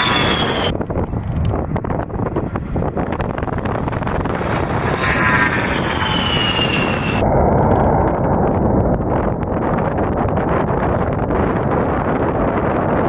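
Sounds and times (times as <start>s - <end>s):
high whine falling in pitch: 0.0s - 0.7s, 3.0s - 9.5s
jet aircraft engine: 0.0s - 9.6s
wind buffeting microphone: 0.0s - 13.0s.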